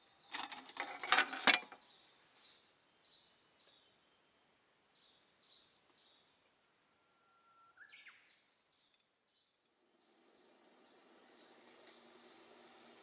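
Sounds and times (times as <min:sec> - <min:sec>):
soft hiss: 0:08.2 - 0:13.0.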